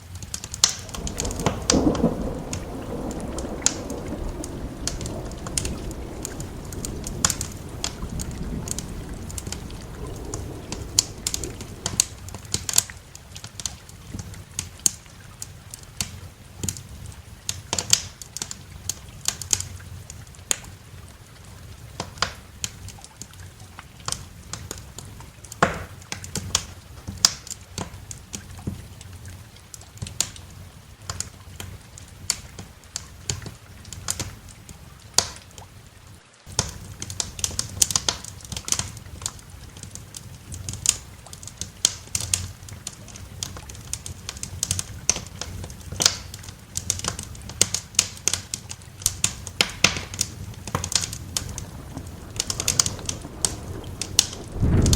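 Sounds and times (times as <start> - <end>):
wood fire crackling and popping: 0.0 - 35.7, 36.4 - 54.9
low steady rumble: 0.8 - 13.0.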